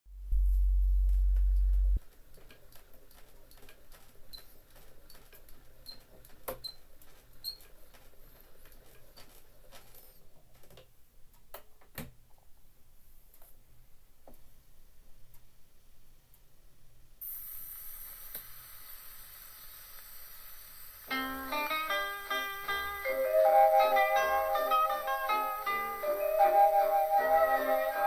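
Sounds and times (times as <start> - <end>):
loud low hum: 0.1 - 2.0
record surface hiss and crackles: 0.1 - 28.0.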